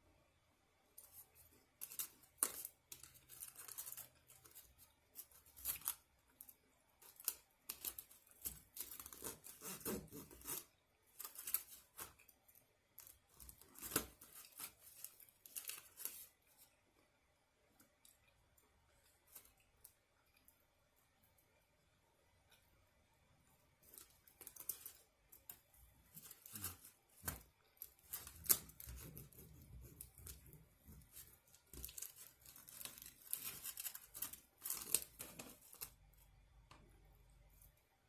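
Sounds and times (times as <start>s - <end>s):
tearing and rasping: 1.0s - 16.6s, 23.8s - 36.0s.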